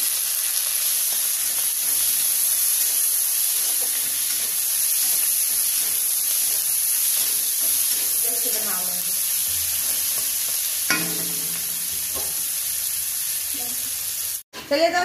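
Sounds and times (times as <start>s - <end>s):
onions sizzling in hot oil: 0.0s - 14.4s
spatula stirring in a pan: 0.7s - 12.7s.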